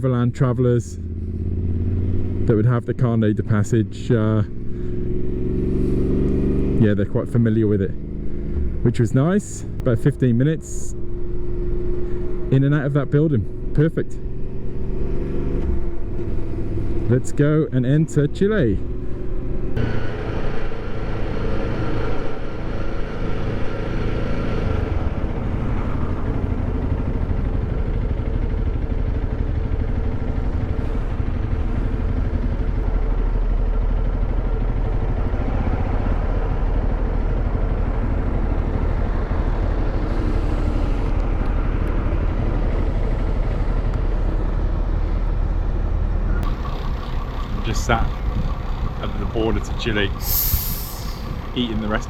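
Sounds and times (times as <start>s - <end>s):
wind and road noise: 0.0s - 52.0s
motorcycle engine: 1.0s - 52.0s.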